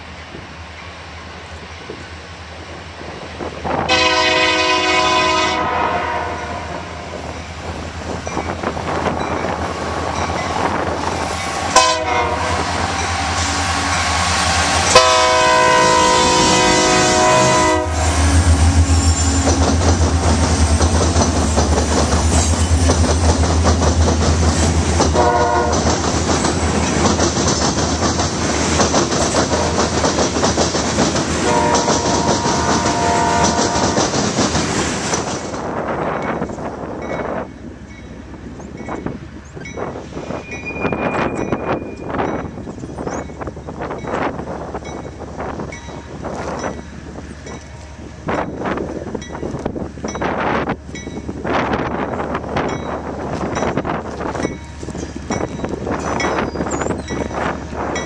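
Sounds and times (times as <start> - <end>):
locomotives rumbling past: 1.6 - 58.0
train air horn blasts: 3.9 - 7.1, 11.4 - 19.5, 25.1 - 25.9, 29.6 - 29.8, 31.4 - 34.0
freight cars clattering over rails: 19.3 - 36.5.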